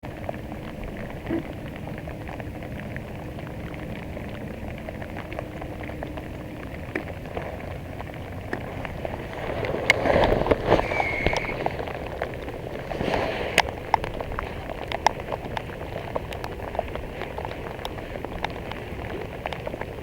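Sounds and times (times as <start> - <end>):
rain falling on water: 0.0 - 20.0.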